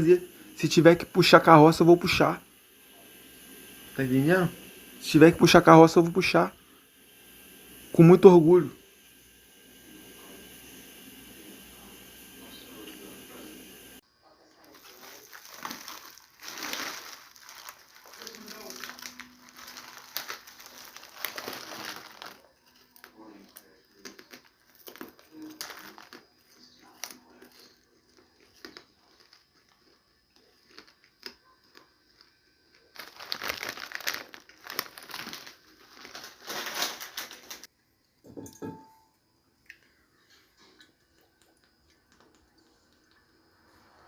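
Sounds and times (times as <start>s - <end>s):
rustling crinkling handling noise: 14.6s - 31.4s, 32.2s - 37.7s.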